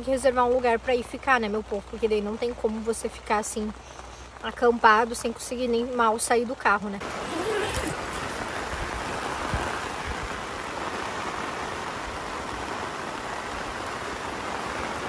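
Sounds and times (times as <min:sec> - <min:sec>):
heavy rain on tent fabric: 0:00.0 - 0:15.0.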